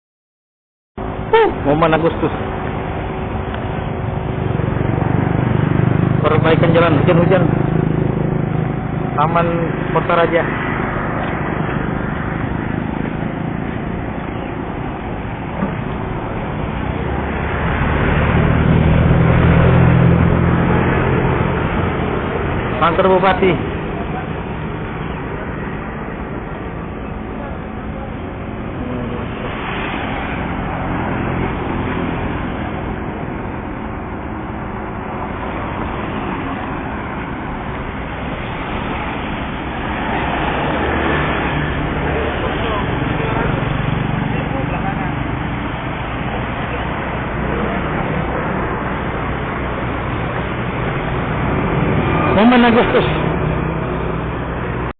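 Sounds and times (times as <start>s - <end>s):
low engine hum: 1.0s - 54.9s
road and rain noise: 1.0s - 54.9s.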